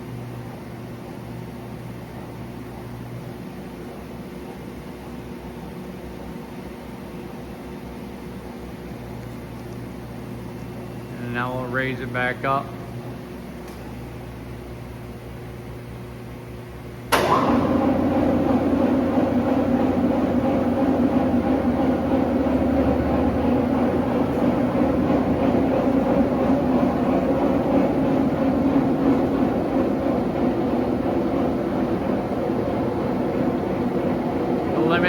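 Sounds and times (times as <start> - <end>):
low steady hum: 7.2 - 35.0
electric tilt drive running: 17.1 - 35.0.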